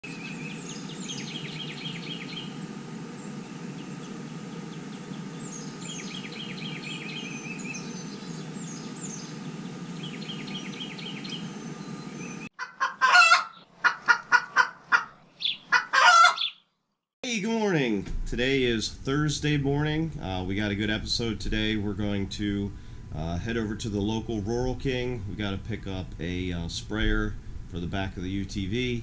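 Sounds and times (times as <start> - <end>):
songbird trilling: 0.1 - 2.6, 4.7 - 13.7, 14.6 - 16.6
chicken clucking and squawking: 12.6 - 16.6
steady low rumble: 17.9 - 29.0.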